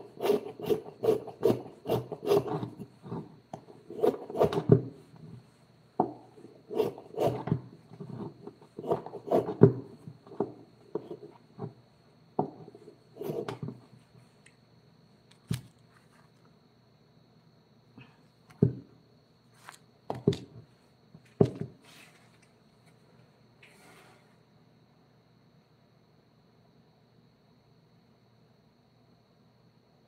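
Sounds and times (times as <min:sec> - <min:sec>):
wooden knocks of carving tools: 0:06.0 - 0:11.8, 0:12.4 - 0:13.8.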